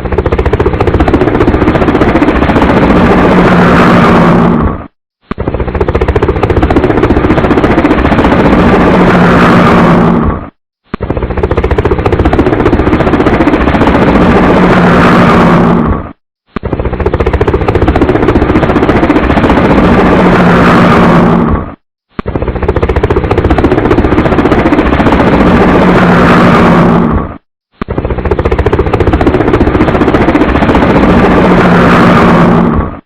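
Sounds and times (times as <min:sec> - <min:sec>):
helicopter rotor chop and engine: 0:00.0 - 0:33.0.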